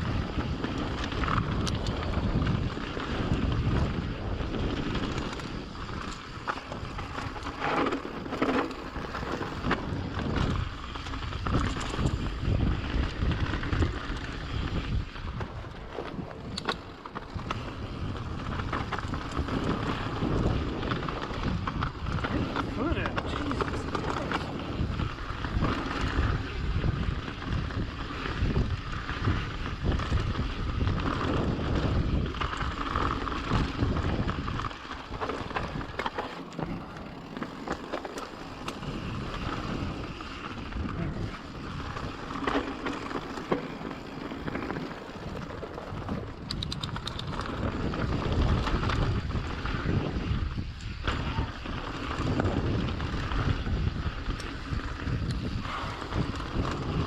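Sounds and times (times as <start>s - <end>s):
bike rattling over bumps: 0.0s - 57.0s
wind buffeting microphone: 0.0s - 57.0s
tyre noise: 6.4s - 10.5s, 32.7s - 49.2s.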